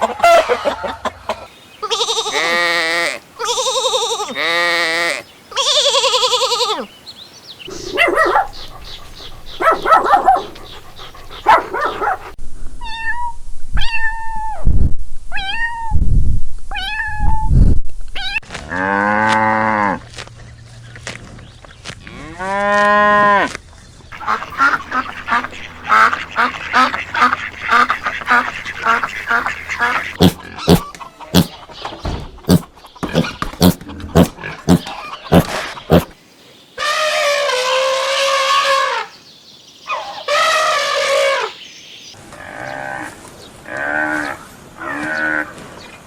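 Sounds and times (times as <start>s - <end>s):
farm animal calls: 7.7s - 12.4s, 24.2s - 36.2s, 39.9s - 41.6s
waterfowl quacking: 24.2s - 31.6s.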